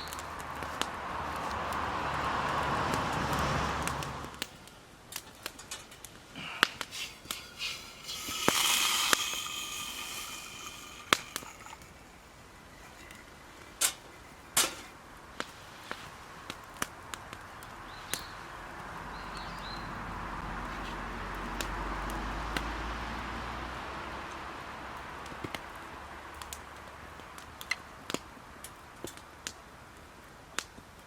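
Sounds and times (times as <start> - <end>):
sharp pops and snaps: 0.0 - 18.4, 25.2 - 29.6, 30.5 - 31.0
campfire crackling: 0.0 - 31.0
hiss with whistle-like tone: 6.4 - 14.6.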